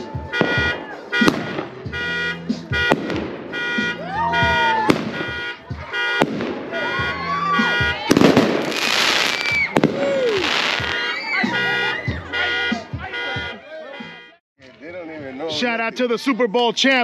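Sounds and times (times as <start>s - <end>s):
car horns honking: 0.0s - 8.7s, 10.4s - 14.4s
fireworks crackling: 0.3s - 1.8s, 6.2s - 7.0s, 7.7s - 11.6s
fireworks banging: 0.3s - 11.8s.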